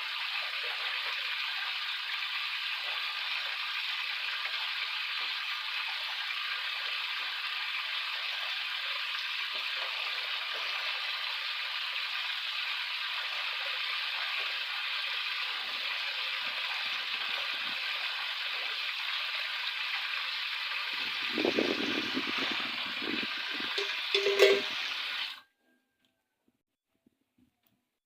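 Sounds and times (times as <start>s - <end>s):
leaves rustling in wind: 20.9s - 23.8s.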